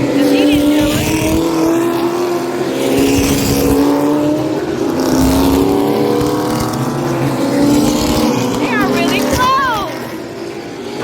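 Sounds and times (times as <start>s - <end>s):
race car engines droning: 0.0s - 11.0s.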